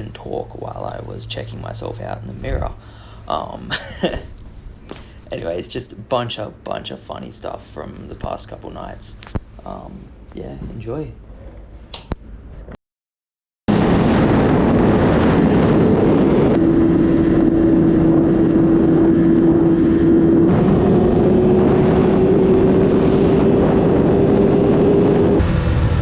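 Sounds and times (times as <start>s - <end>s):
wind rush over microphone: 0.0s - 5.2s, 13.7s - 26.0s
motorcycle engine: 16.6s - 26.0s.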